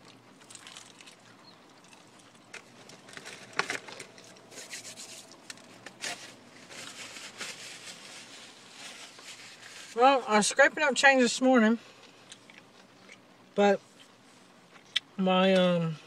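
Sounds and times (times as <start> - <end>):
chewing crispy fried chicken: 0.0 - 6.0, 12.0 - 13.3
breading crackling: 0.0 - 10.2
rustling: 0.4 - 10.0.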